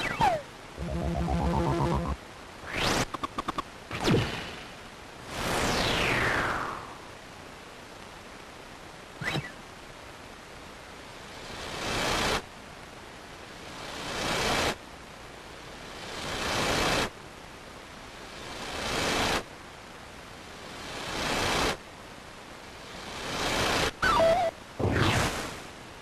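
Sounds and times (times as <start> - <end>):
whooshing hiss effect: 0.0 - 7.2
steady background hiss: 0.0 - 26.0.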